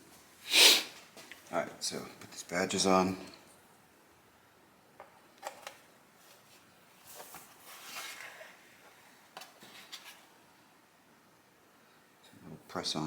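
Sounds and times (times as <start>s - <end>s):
rustle and scrape: 6.2s - 10.4s.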